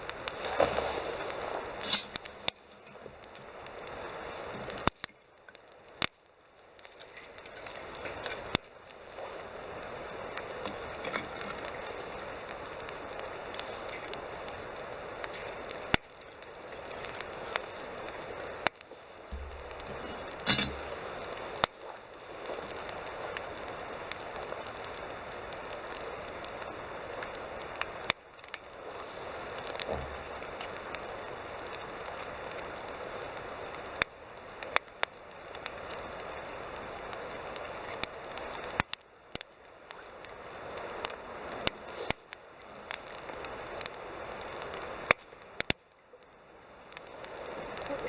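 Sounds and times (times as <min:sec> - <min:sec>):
sharp fire pops: 0:00.0 - 0:26.6, 0:27.2 - 0:46.3
campfire hissing and crackling: 0:00.0 - 0:48.0.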